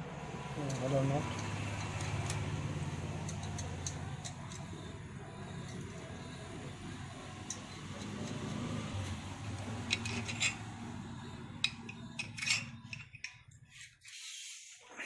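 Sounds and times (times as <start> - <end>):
steady low hum: 0.0 - 13.7
wrench clicking on nuts: 3.2 - 4.7.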